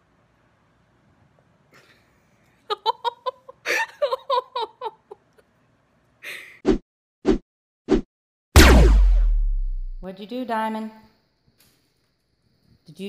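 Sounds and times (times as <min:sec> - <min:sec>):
person laughing: 0:02.7 - 0:05.3
person breathing: 0:06.2 - 0:06.6
sharp thumps: 0:08.6 - 0:10.0.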